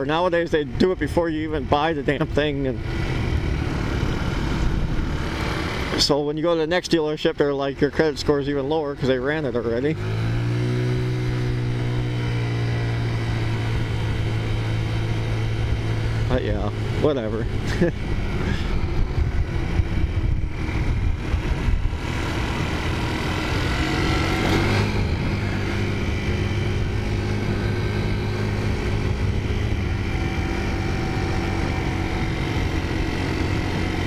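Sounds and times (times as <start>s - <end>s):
wind rumbling on microphone: 0.0s - 6.0s, 13.4s - 34.0s
scooter engine running: 1.4s - 6.3s, 7.6s - 34.0s.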